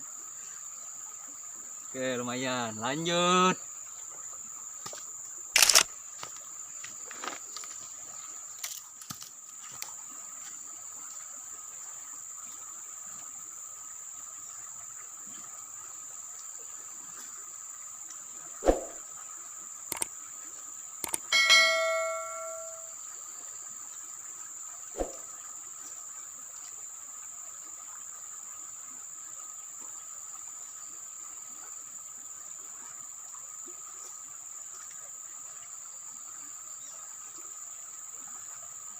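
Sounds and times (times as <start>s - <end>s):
insects droning: 0.0s - 38.9s
sharp clicks: 5.6s - 5.9s, 19.9s - 20.1s, 21.0s - 21.3s
short ringing tone: 21.3s - 23.0s.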